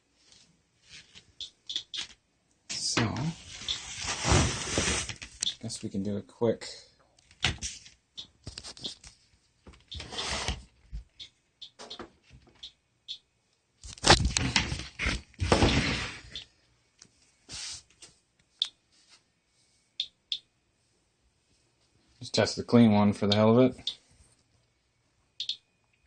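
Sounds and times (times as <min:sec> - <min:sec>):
geiger counter beeps: 0:25.3 - 0:25.7.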